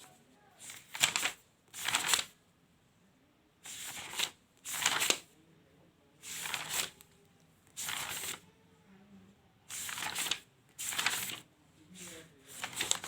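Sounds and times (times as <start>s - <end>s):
notebook pages turning: 0.0s - 2.3s, 3.7s - 5.3s, 6.2s - 8.4s, 9.7s - 13.0s.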